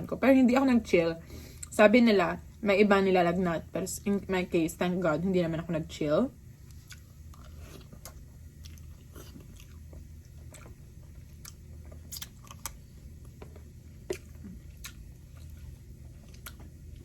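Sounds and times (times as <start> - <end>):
low steady hum: 0.0 - 17.0
person chewing food: 6.6 - 17.0.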